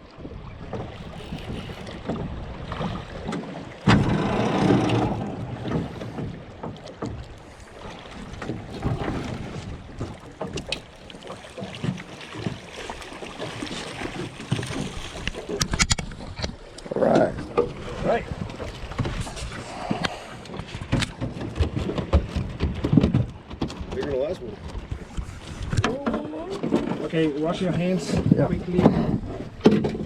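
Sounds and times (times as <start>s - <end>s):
water moving around boat: 0.0s - 30.0s
wind on microphone: 0.2s - 6.6s, 24.8s - 26.7s, 28.1s - 30.0s
small knocks: 3.8s - 7.2s.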